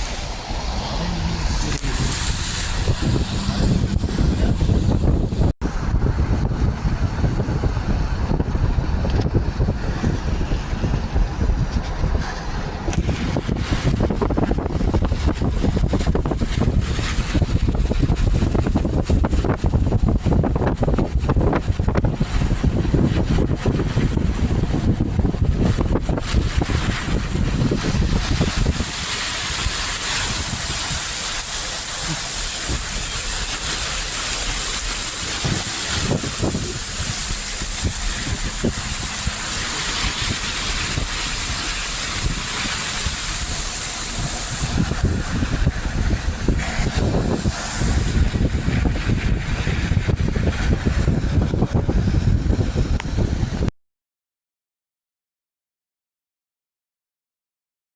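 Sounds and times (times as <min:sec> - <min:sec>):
heavy rain hissing: 0:00.0 - 0:05.9, 0:26.5 - 0:52.0
traffic rumbling: 0:00.0 - 0:53.6
wind on microphone: 0:00.0 - 0:53.7.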